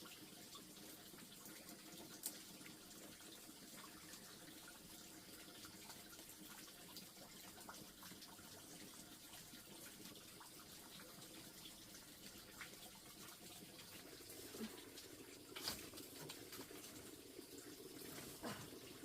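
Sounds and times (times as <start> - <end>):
faint water: 0.0 - 19.0.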